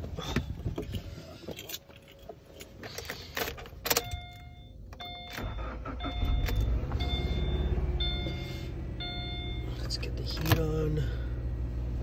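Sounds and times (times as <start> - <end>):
car engine starting and idling: 0.0 - 12.0
keys clicking into ignition: 0.8 - 6.7
car warning chime: 3.9 - 10.4.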